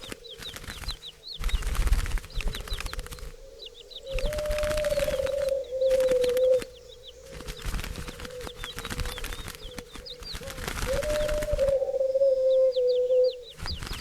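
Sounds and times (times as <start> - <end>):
wings fluttering: 0.0 - 14.0
high bird chirps: 2.5 - 7.7
low wavering bird call: 3.4 - 7.5, 10.9 - 13.6.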